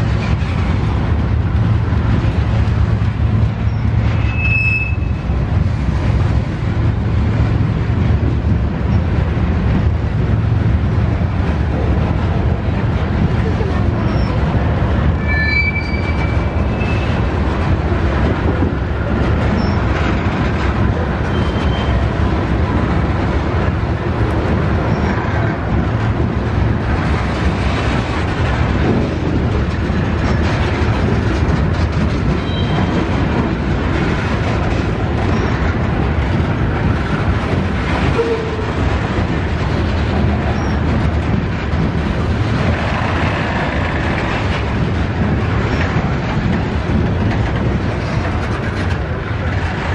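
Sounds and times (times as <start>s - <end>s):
freight train cars rumbling: 0.0s - 49.9s
faint wheel squeals: 15.2s - 17.1s.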